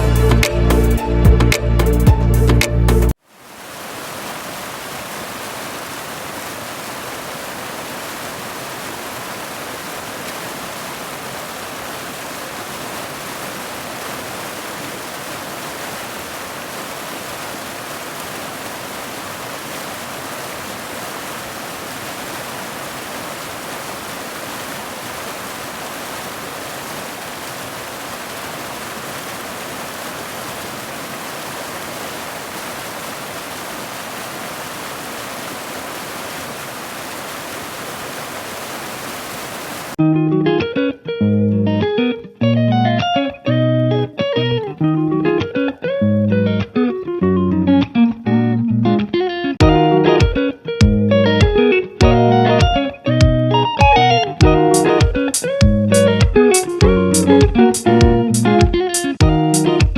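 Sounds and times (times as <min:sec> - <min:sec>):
waterfall roaring: 0:03.3 - 0:40.0.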